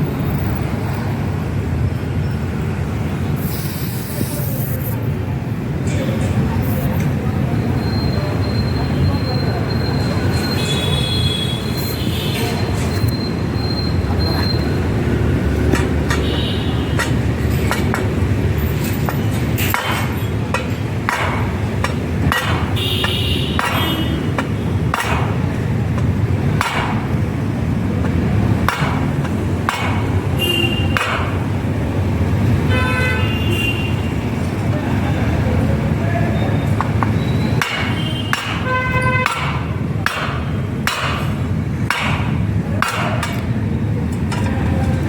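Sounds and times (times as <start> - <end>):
hammer striking metal wheel: 15.6 - 27.4, 28.0 - 31.5, 36.8 - 43.6.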